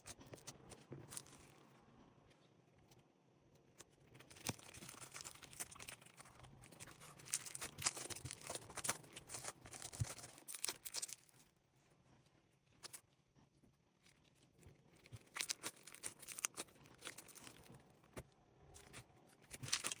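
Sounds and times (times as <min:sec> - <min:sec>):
slime crackling and popping: 0:04.1 - 0:11.4, 0:15.0 - 0:17.8, 0:18.8 - 0:20.0.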